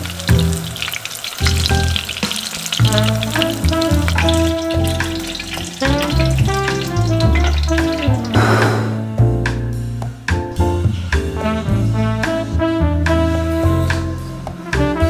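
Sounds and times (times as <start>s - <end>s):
food sizzling in oil: 0.0s - 8.8s
background music: 0.0s - 15.0s.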